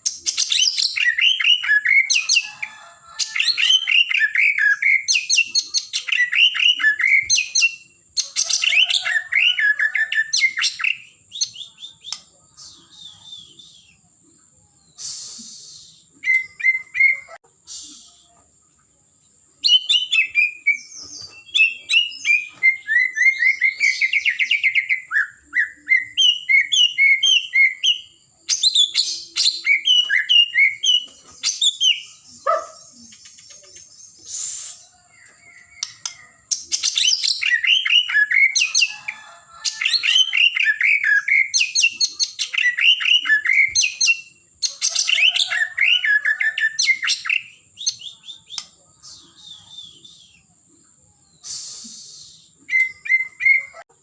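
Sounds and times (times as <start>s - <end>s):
bird singing whistled phrases: 8.6s - 14.1s, 15.0s - 18.3s, 19.6s - 33.6s, 40.0s - 50.6s, 51.3s - 53.8s.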